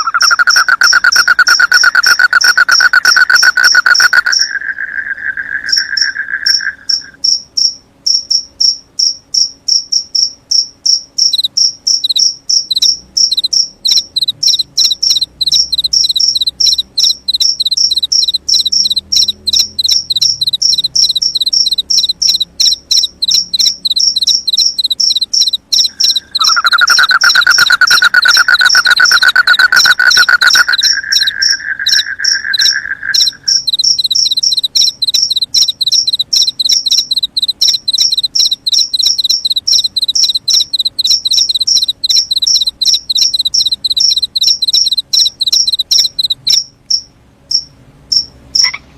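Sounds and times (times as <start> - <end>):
crickets chirping: 0.0 - 48.8.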